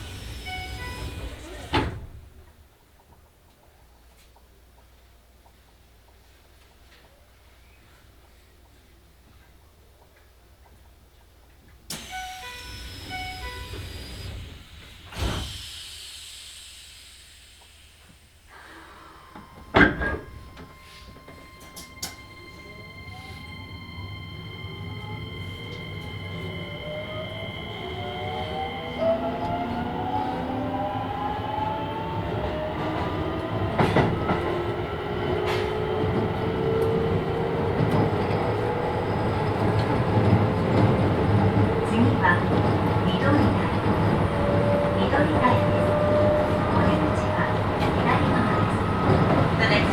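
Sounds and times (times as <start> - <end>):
train doors closing with thumps: 0.0 - 2.5, 12.0 - 15.8, 19.3 - 23.4, 32.4 - 49.9
wheels rumbling on rails: 19.2 - 49.9.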